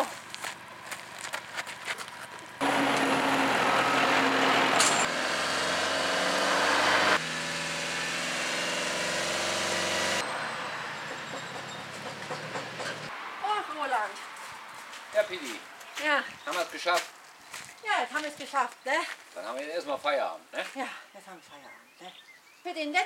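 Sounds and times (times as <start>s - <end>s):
vehicle engine running: 0.2s - 13.1s.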